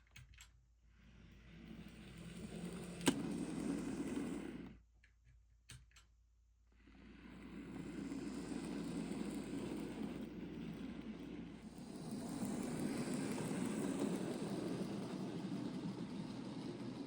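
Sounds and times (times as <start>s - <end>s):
model train rumbling on track: 1.4s - 4.8s, 6.9s - 17.0s.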